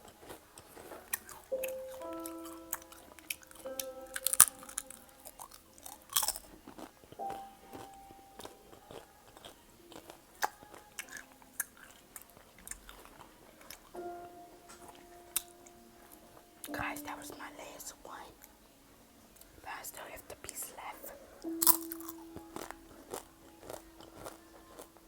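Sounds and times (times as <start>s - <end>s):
faint background music: 0.0s - 25.0s
potato chips crunched: 4.2s - 6.9s, 21.6s - 24.9s.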